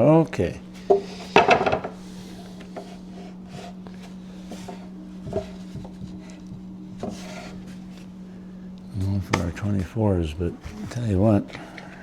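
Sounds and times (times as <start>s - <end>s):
steady low hum: 0.0s - 12.0s
wooden stakes knocking: 0.8s - 8.1s, 9.2s - 9.9s.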